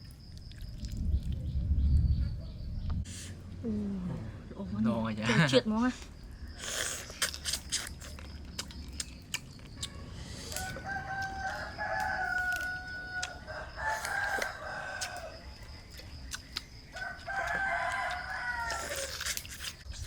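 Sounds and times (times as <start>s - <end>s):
rooster crowing: 9.8s - 15.9s, 16.9s - 19.2s.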